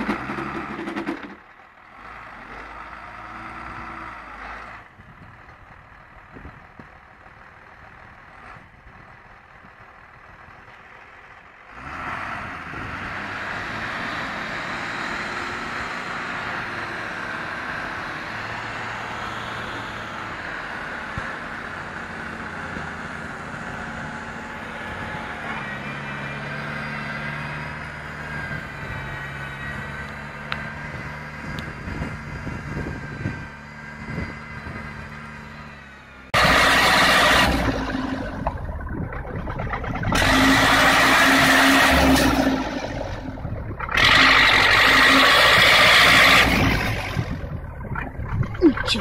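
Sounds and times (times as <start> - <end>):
heavy vehicle engine running: 0.0 - 49.0
vehicle engine revving hard: 11.7 - 20.8, 36.4 - 38.4, 39.7 - 47.5.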